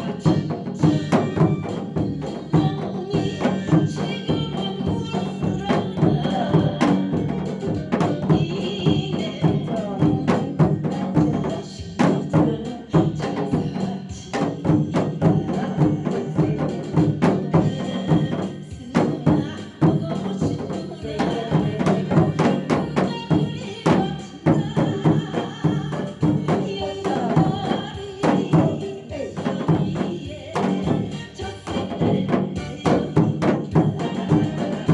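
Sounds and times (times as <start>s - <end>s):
hourglass drum strokes: 0.0s - 34.9s
recorded song backing track: 0.0s - 34.9s.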